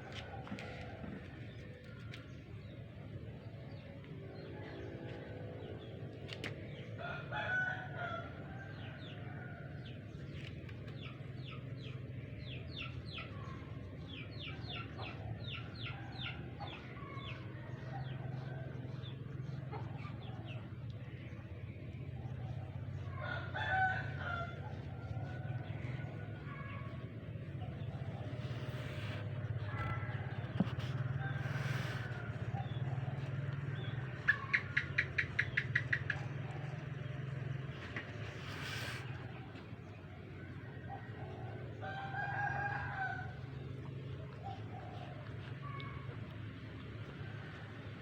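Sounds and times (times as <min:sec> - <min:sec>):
rooster crowing: 0:23.2 - 0:24.7, 0:40.9 - 0:43.5.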